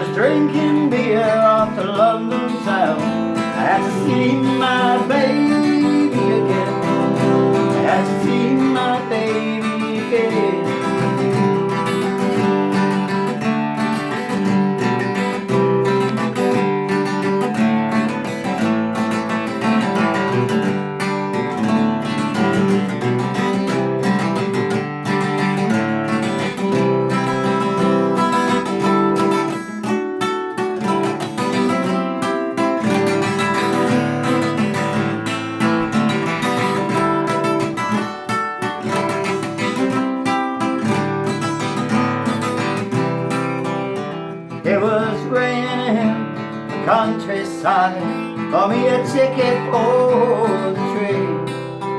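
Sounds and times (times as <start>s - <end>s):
person singing: 0.0s - 12.9s, 38.7s - 40.0s, 43.7s - 51.9s
acoustic guitar strumming: 0.0s - 51.9s.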